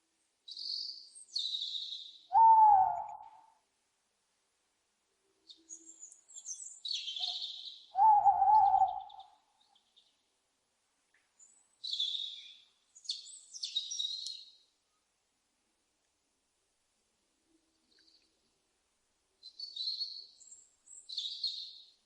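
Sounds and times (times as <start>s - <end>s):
owl calls: 2.3s - 3.5s, 7.2s - 9.4s.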